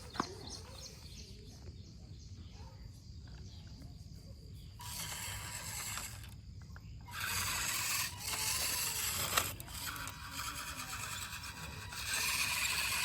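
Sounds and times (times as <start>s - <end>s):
toy vehicle motor whirring: 0.0s - 0.9s, 4.7s - 13.0s.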